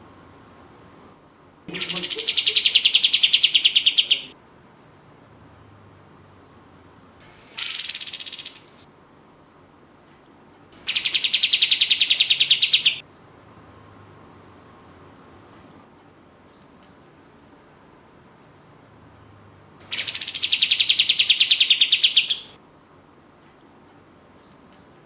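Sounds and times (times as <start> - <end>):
bird rattling calls: 1.7 - 4.3, 7.4 - 8.8, 10.9 - 13.0, 19.9 - 22.5.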